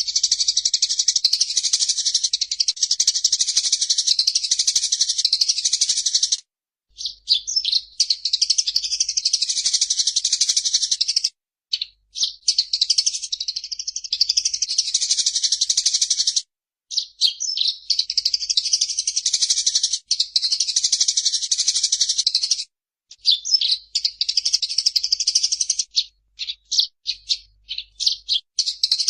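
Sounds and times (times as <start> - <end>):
sparrows chattering: 0.0 - 29.0.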